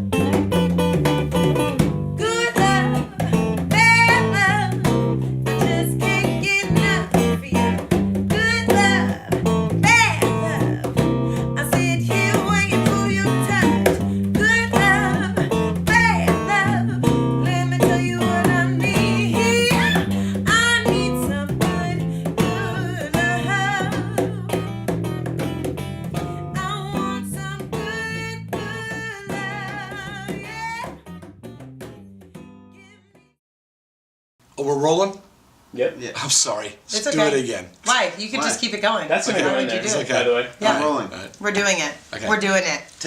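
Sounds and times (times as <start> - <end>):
woman singing: 2.2 - 25.0, 26.2 - 31.0, 32.7 - 33.4, 40.6 - 40.9.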